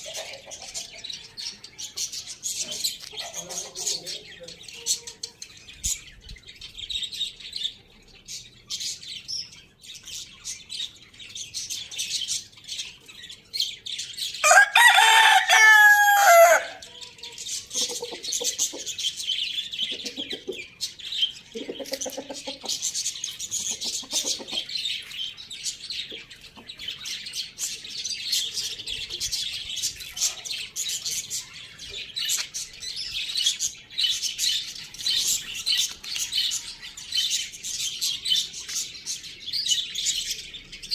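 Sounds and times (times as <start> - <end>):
small birds chirping: 0.0 - 40.9
rooster crowing: 14.4 - 16.8.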